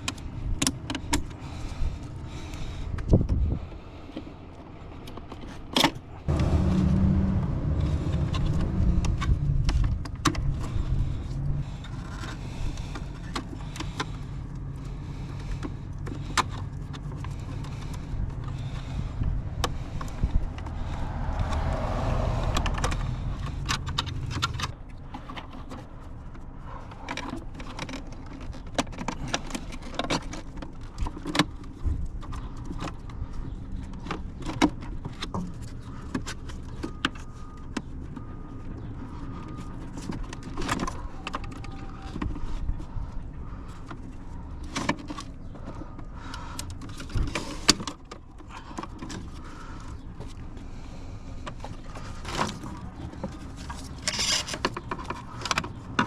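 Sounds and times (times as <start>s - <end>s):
steady low hum: 6.0s - 25.1s
small parts clicking and rattling: 51.4s - 56.0s.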